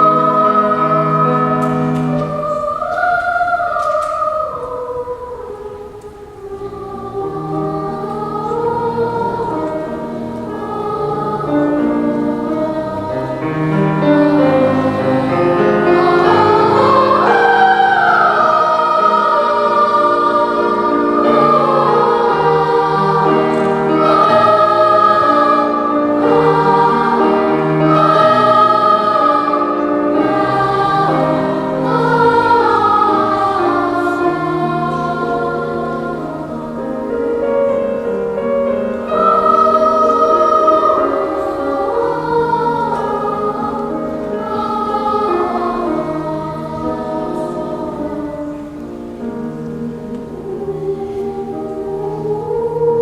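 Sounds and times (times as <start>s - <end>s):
children's choir singing: 0.0s - 53.0s.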